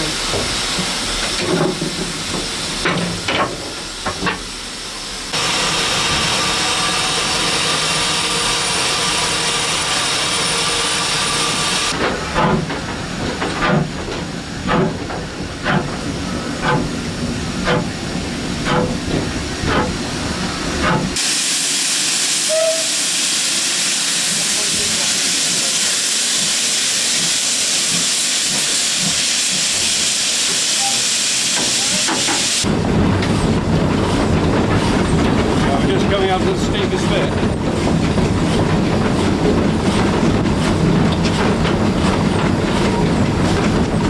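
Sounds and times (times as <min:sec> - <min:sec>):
steam hissing: 0:00.0 - 0:12.0, 0:15.9 - 0:32.7
steam locomotive exhaust beats: 0:00.0 - 0:44.0.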